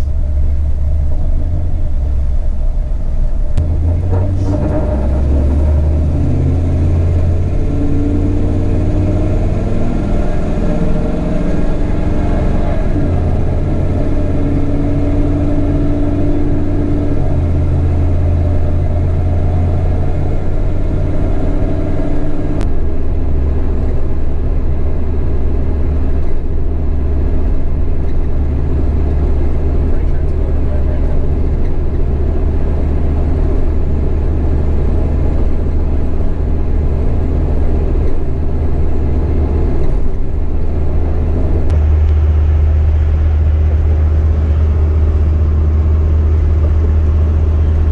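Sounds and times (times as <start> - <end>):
road noise: 0.0 - 47.9
truck engine drone: 0.0 - 47.9.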